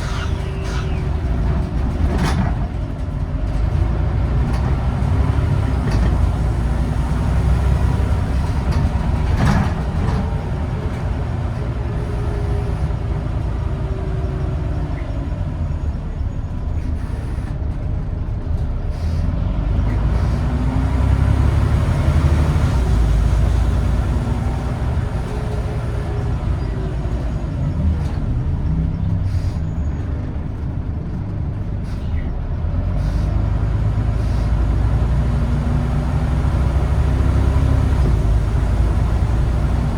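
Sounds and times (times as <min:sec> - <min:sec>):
bus diesel engine rumbling: 0:00.0 - 0:39.9
air brake hiss: 0:33.0 - 0:33.4, 0:34.2 - 0:34.6.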